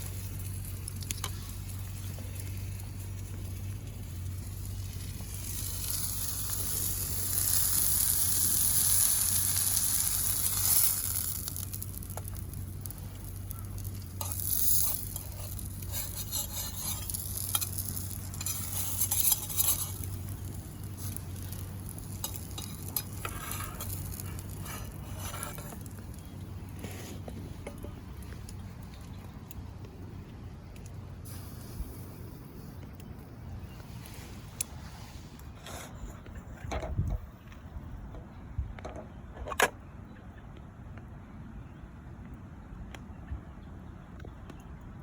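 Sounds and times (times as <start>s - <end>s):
food sizzling in pan: 3.4s - 26.2s
utensil scraping pan: 13.7s - 28.0s.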